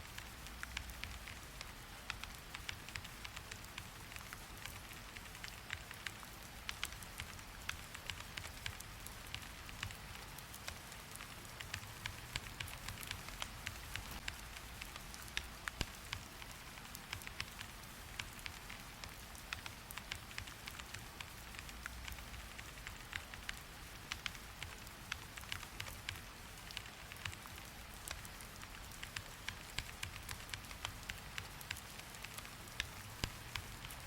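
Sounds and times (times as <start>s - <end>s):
sharp taps of raindrops: 0.0s - 34.0s
steady rain: 0.0s - 34.0s.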